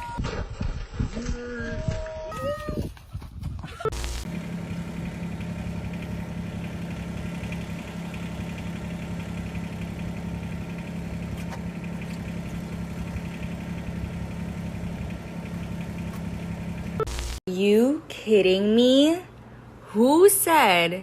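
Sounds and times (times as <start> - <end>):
motor droning: 3.9 - 17.4.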